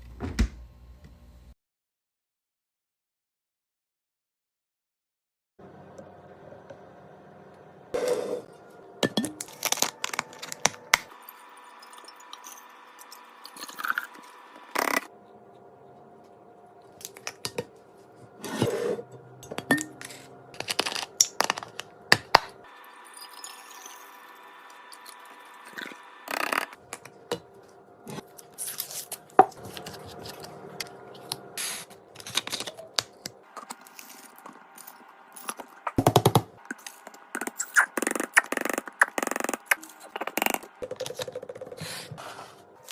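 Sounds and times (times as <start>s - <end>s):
plastic packaging tearing and crinkling: 28.5s - 30.5s.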